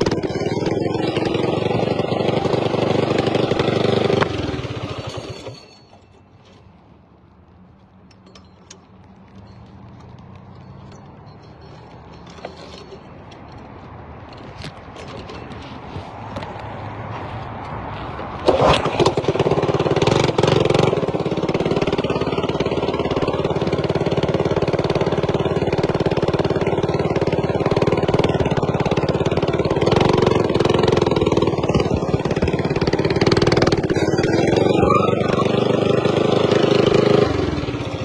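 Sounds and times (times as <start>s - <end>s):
mini bike engine revving: 0.0s - 5.7s, 18.4s - 38.0s.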